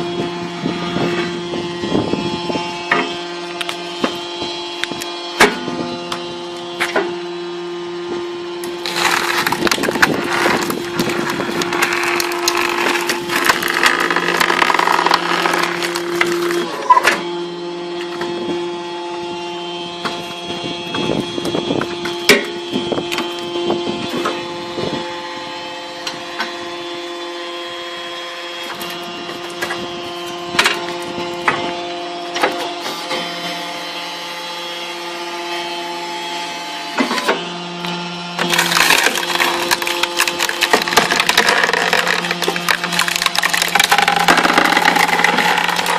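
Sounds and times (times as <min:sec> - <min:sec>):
split wood pieces clunking: 0:08.6 - 0:16.7, 0:38.4 - 0:45.9
wood cracking and splintering: 0:08.6 - 0:16.9, 0:38.4 - 0:45.9
log splitter humming: 0:08.6 - 0:17.7, 0:38.4 - 0:45.9.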